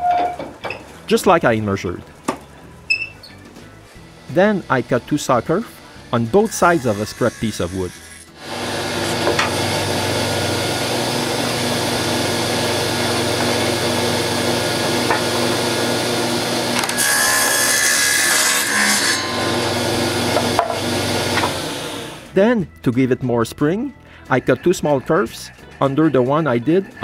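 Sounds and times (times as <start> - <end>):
saw cutting wood: 3.8 - 22.3
table saw motor hum: 3.9 - 22.3.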